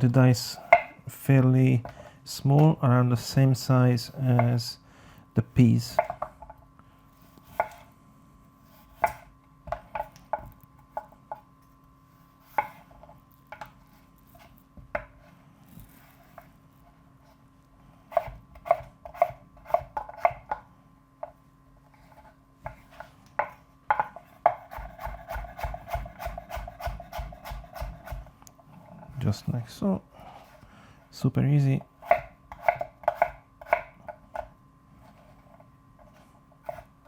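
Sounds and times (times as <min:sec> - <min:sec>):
knife chopping on cutting board: 0:07.5 - 0:07.8, 0:08.8 - 0:10.4, 0:18.1 - 0:20.6, 0:22.7 - 0:28.3, 0:32.0 - 0:34.5, 0:36.6 - 0:36.9.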